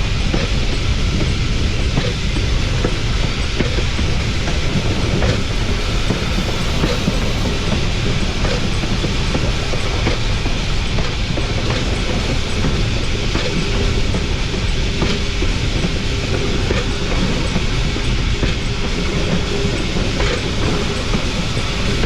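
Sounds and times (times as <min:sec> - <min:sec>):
train wheels rumbling on rails: 0:02.6 - 0:09.3.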